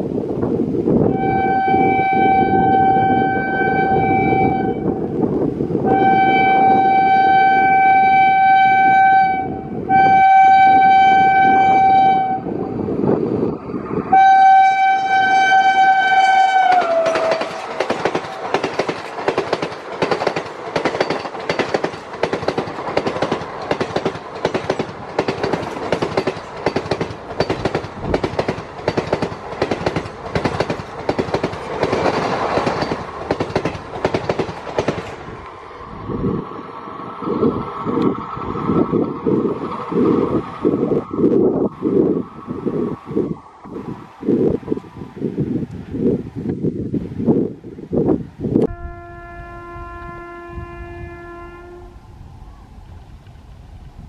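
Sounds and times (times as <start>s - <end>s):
locomotive horn blasts: 1.1s - 5.0s, 5.8s - 12.6s, 14.1s - 17.5s, 48.7s - 52.0s
train wheels clacking over rail joints: 16.1s - 35.3s.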